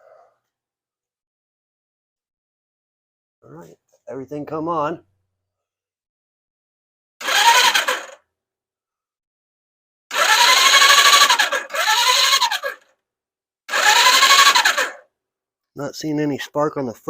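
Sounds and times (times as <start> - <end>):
starter motor cranking engine: 7.2 - 8.2, 10.1 - 12.9, 13.7 - 15.1.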